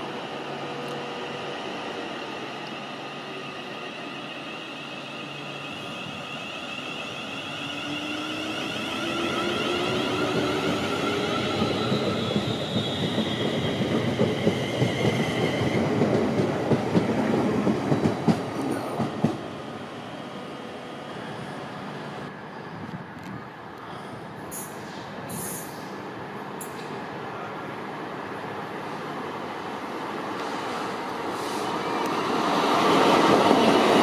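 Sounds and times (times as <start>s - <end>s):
electric train whining: 0.0s - 17.4s.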